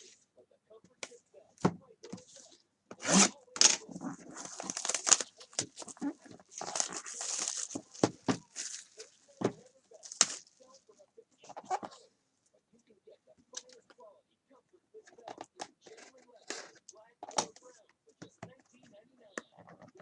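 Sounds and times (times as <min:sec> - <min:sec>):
plastic wrap crinkling and tearing: 0:02.4 - 0:10.9.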